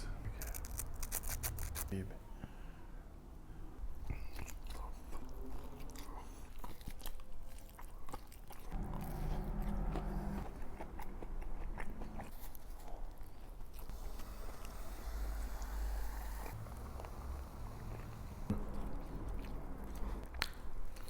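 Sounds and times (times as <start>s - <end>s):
biting and chewing food: 0.3s - 2.0s, 4.0s - 14.8s, 16.4s - 21.0s
low hum: 8.7s - 21.0s.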